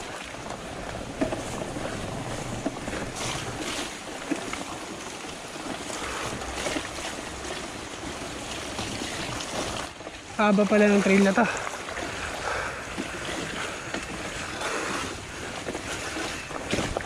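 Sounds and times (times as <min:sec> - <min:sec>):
bike tyre noise: 0:00.0 - 0:17.0
bike knocks and rattles: 0:00.2 - 0:10.1, 0:15.4 - 0:17.0.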